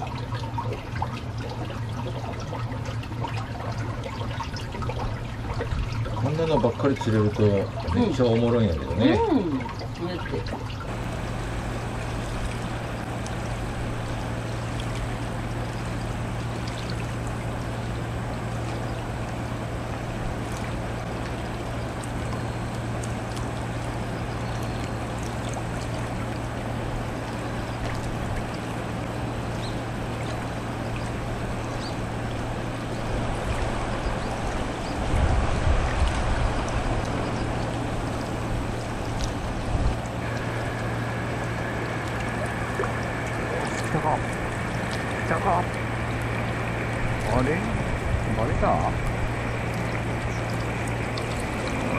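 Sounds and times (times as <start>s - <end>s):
constant low hum: 0.0s - 51.9s
low rumble: 10.9s - 51.9s
river current rushing: 10.9s - 51.9s.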